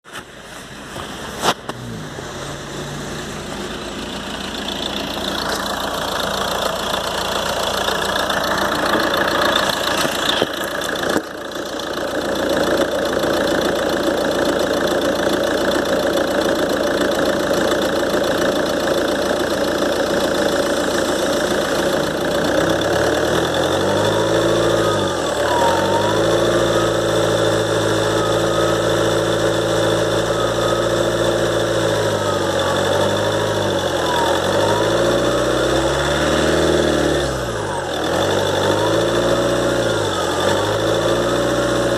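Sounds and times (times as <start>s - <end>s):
diesel engine running: 0.1s - 41.9s
turbocharger whistle: 22.6s - 41.9s.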